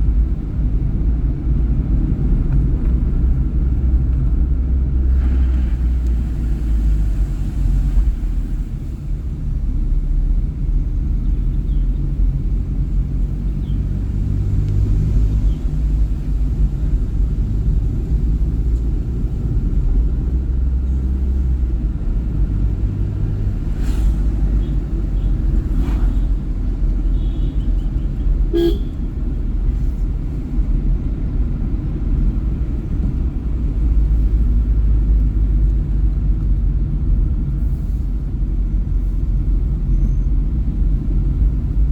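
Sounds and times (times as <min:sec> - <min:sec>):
vehicle rumble on road: 0:00.0 - 0:41.9
car horn toot: 0:28.5 - 0:29.0.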